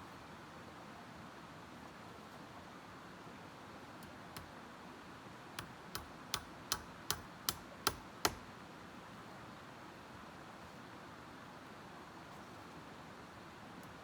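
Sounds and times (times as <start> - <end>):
tool knocking like hammering: 5.6 - 8.5.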